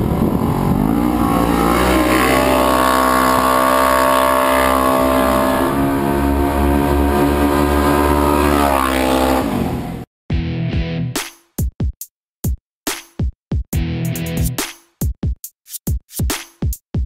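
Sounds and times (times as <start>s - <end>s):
engine running at high revs: 0.0s - 10.0s.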